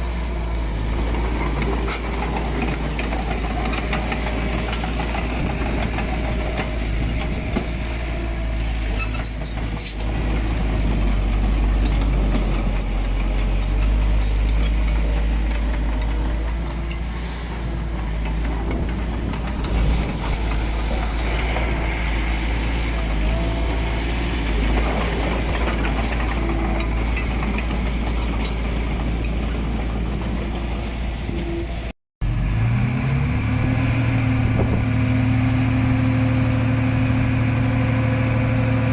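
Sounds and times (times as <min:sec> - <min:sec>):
heavy machinery diesel engine: 0:00.0 - 0:38.9
sharp metal squeaks and clanks: 0:08.9 - 0:11.5, 0:19.6 - 0:21.6.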